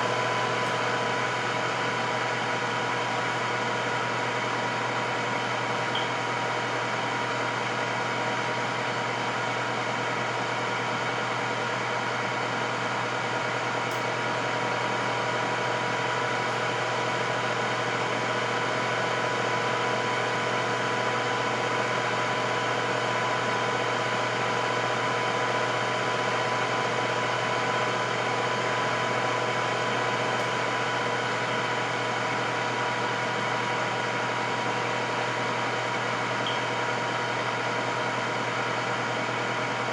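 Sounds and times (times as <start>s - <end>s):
air fryer fan whirring: 0.0s - 39.9s.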